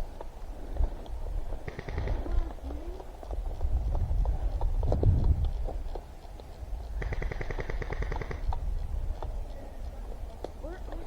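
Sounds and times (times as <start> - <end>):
airsoft gun automatic burst: 7.0 - 8.4.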